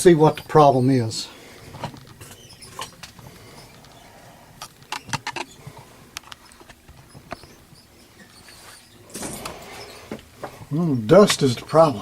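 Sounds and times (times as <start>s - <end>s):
hands clicking and knocking on heater: 1.6s - 11.5s.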